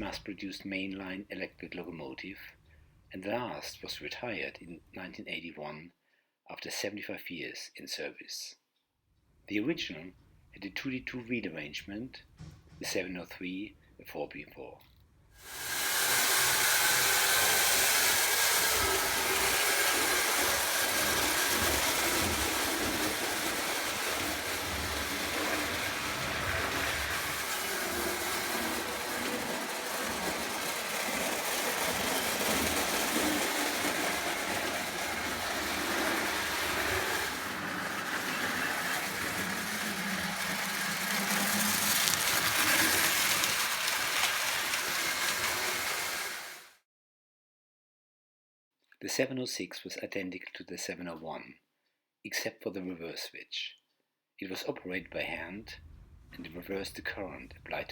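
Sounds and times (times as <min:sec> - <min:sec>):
toy electric train rattling: 0:15.4 - 0:46.8.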